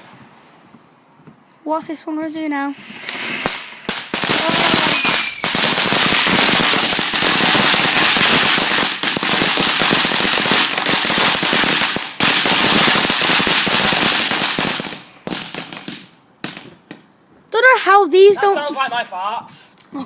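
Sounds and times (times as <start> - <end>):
firework crackling: 2.6 - 17.6.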